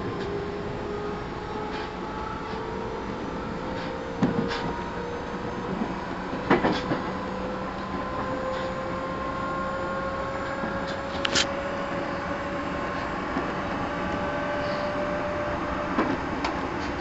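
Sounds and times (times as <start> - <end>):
electric train motor whine: 0.0 - 16.7.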